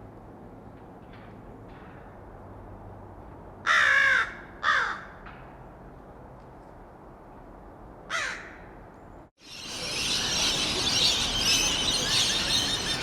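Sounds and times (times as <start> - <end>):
crow cawing: 3.7 - 5.1, 8.1 - 8.7.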